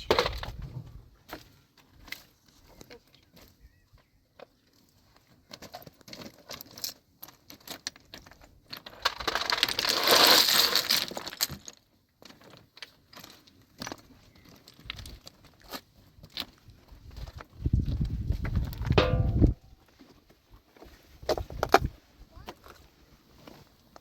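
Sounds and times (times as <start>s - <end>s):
small clinks and knocks: 5.5s - 16.5s.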